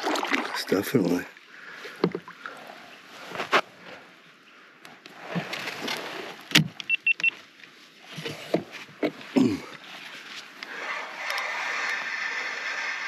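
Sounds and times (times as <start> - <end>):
short high beeps: 6.9 - 7.3
fishing reel spinning: 10.8 - 13.0.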